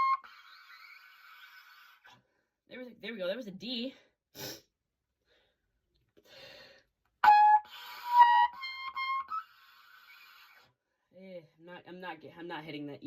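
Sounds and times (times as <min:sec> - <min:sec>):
player breathing: 0:06.2 - 0:06.9.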